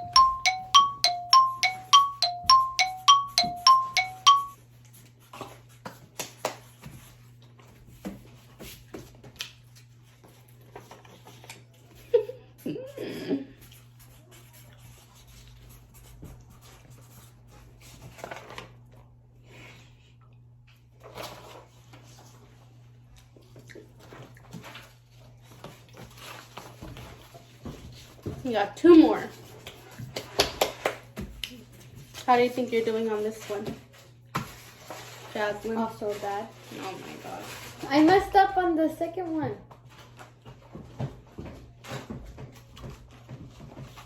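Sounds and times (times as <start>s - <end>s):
two-note chime: 0.0s - 4.6s.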